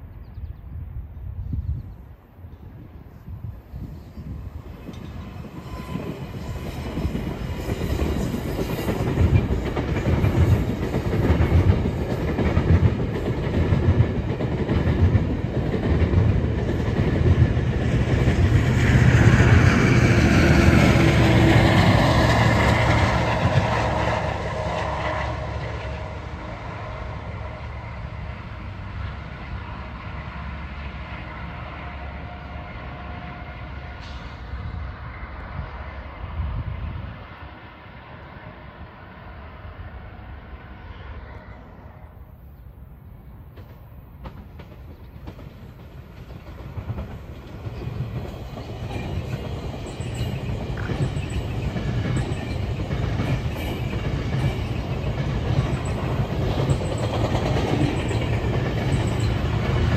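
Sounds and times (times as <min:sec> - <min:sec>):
train passing: 0:00.0 - 0:59.9
wheels clicking over rail joints: 0:43.5 - 0:59.9.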